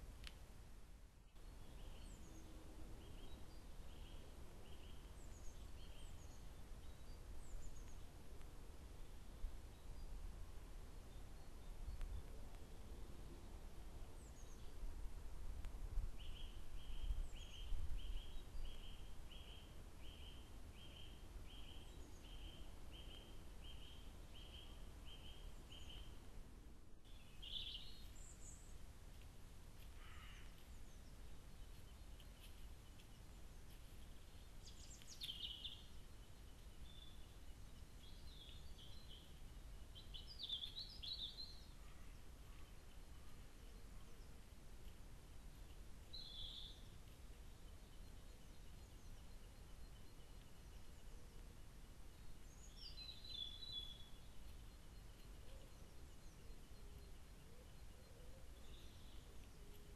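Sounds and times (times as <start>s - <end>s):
birds chirping: 29.7s - 59.9s.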